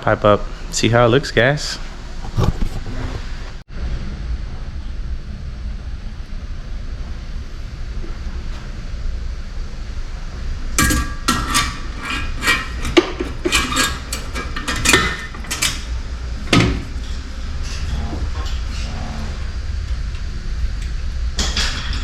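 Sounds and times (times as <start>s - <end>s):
steady low rumble: 0.0s - 22.0s
metal clanking: 10.8s - 18.0s.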